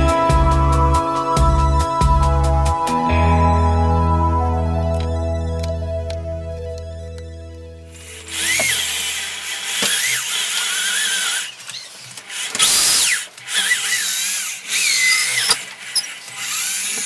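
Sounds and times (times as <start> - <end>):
drill cutting wood: 7.9 - 17.0.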